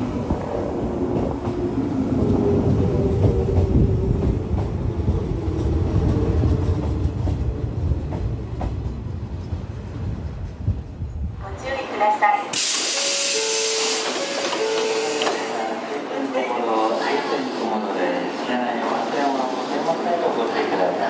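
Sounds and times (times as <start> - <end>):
train wheels rumbling and clattering: 0.0 - 13.0.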